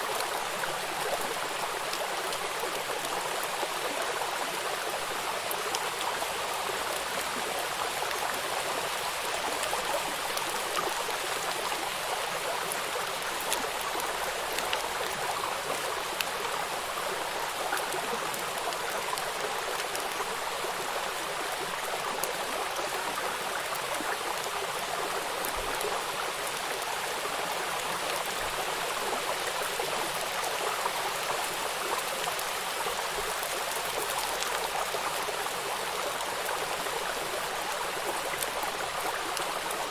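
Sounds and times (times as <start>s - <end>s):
raindrops pattering on water: 0.0s - 39.9s
river flowing: 0.0s - 39.9s.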